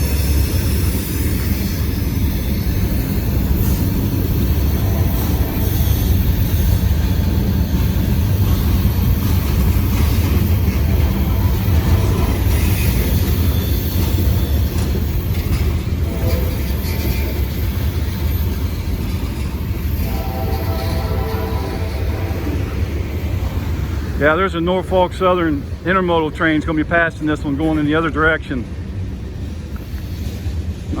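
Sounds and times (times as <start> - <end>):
freight train cars rolling past: 0.0 - 31.0.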